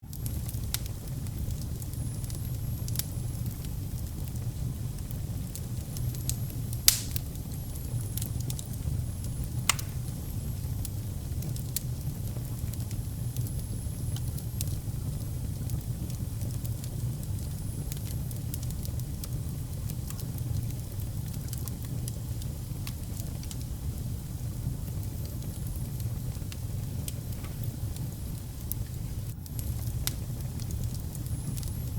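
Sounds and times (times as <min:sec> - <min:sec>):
fire rumbling and crackling: 0:00.0 - 0:31.9
sharp fire pops: 0:00.1 - 0:13.5, 0:24.6 - 0:31.9.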